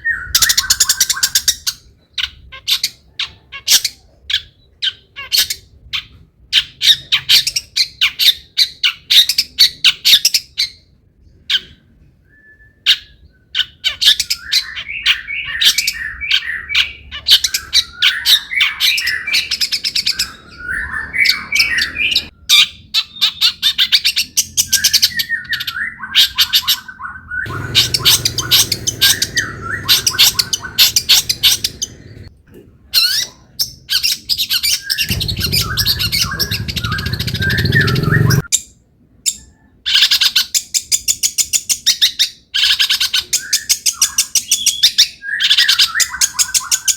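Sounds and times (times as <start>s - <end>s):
shrike song with harsh squawks: 24.9s - 32.3s, 34.6s - 38.5s.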